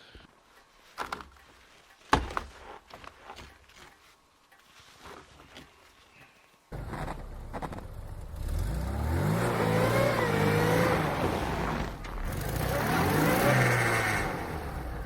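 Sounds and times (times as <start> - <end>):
tyre spinning in snow: 6.7 - 14.2
car engine revving hard: 8.2 - 15.0.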